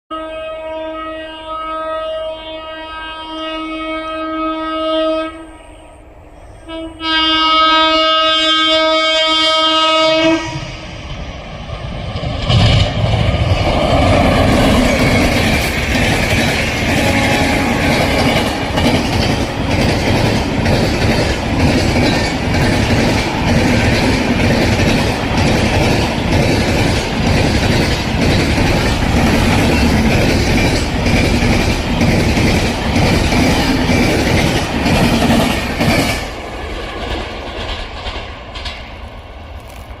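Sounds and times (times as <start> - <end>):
train rumbling past: 0.6 - 40.0
wheels clacking over rail joints: 11.8 - 40.0.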